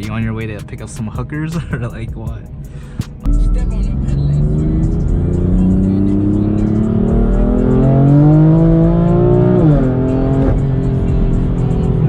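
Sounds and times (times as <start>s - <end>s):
car engine accelerating: 3.0s - 12.0s.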